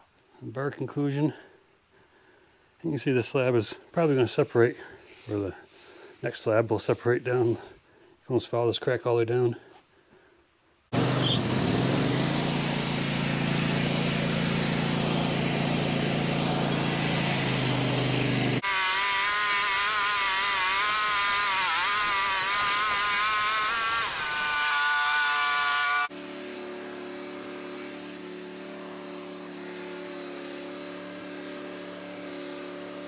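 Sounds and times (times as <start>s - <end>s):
saw blade cutting wood: 10.9s - 33.0s
sawmill engine: 10.9s - 33.0s.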